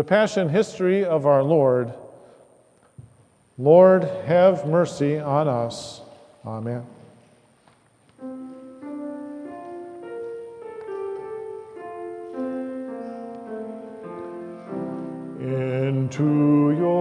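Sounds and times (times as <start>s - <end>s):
keyboard playing slow melody: 8.2s - 17.0s.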